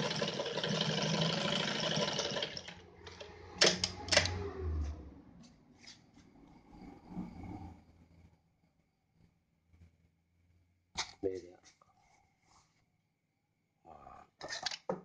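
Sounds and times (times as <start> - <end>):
sewing machine stitching: 0.0 - 4.3.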